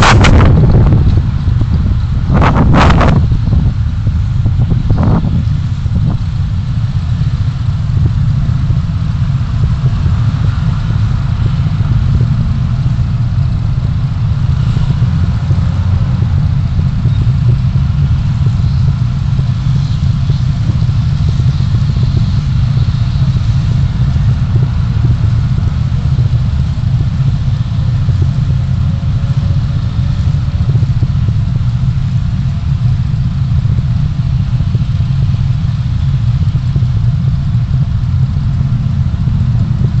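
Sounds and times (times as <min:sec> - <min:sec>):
car engine and road noise: 0:00.0 - 0:40.0.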